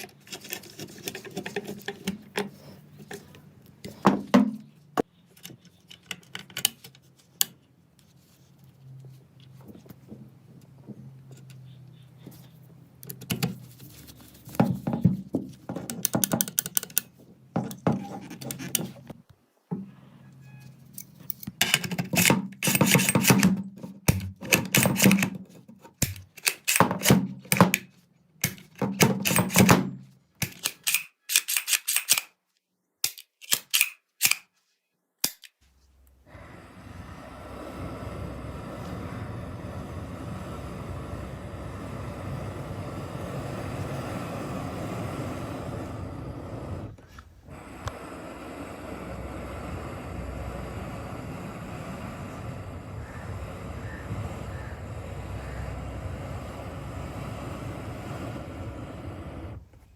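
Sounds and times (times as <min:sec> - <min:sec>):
low hum: 0:35.8 - 0:59.8
steady wind-like rush: 0:36.2 - 0:59.9.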